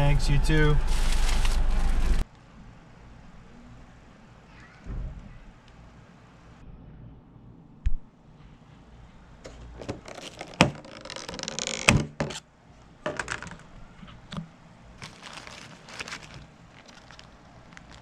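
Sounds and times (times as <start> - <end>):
paper bags rustling: 0.8 - 2.2, 9.8 - 11.9, 15.0 - 18.0.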